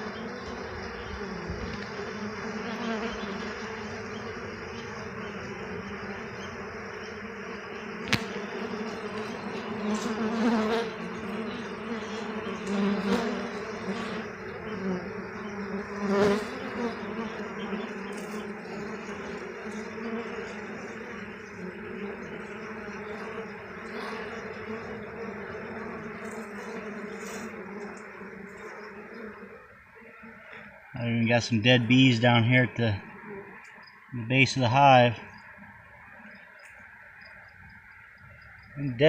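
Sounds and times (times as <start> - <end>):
honeybees buzzing: 0.0 - 39.0.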